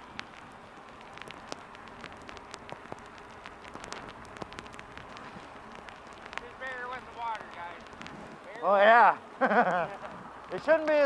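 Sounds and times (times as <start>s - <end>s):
raindrops ticking on camera: 0.0s - 11.0s
steady wet hiss of rain: 0.0s - 11.0s.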